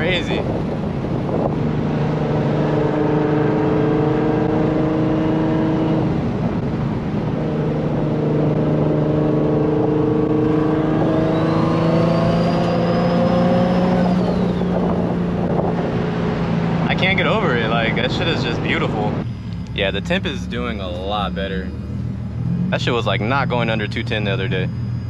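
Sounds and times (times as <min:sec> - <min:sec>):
car engine pulling hard: 0:00.0 - 0:25.0
turbo whistle: 0:11.2 - 0:14.9.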